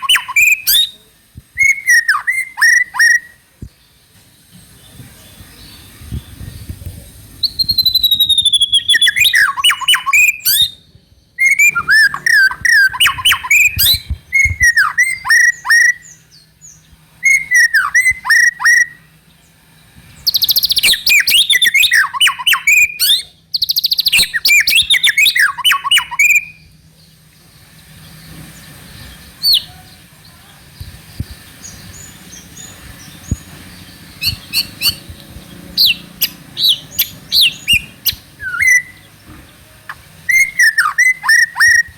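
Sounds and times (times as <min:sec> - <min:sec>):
bird singing whistles and trills: 0:00.0 - 0:01.0, 0:01.6 - 0:03.4, 0:07.4 - 0:19.2, 0:20.2 - 0:26.7, 0:29.0 - 0:29.7, 0:31.1 - 0:39.1, 0:40.2 - 0:41.9.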